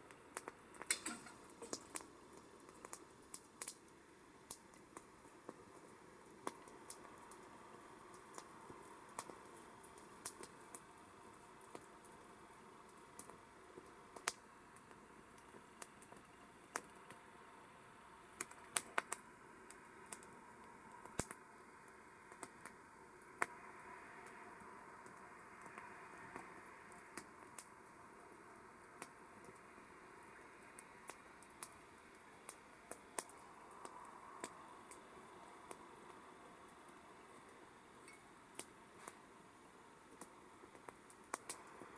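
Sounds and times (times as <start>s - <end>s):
hiss of flames: 0.1s - 14.4s
wood crackling and popping: 0.1s - 17.2s, 18.3s - 41.9s.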